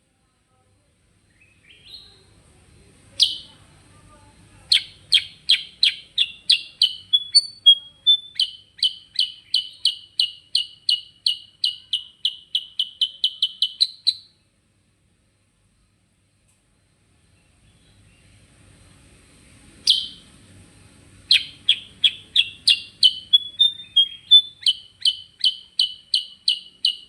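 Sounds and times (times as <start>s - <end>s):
bulbul singing: 3.2s - 3.6s, 4.7s - 14.4s, 19.8s - 20.3s, 21.3s - 27.0s.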